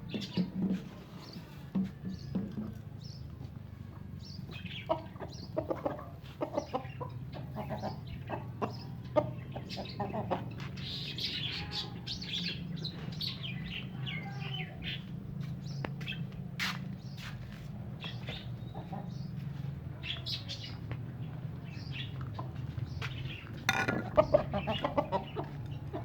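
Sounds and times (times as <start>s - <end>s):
small birds chirping: 0.0s - 26.0s
hens clucking: 4.5s - 12.4s, 18.3s - 26.0s.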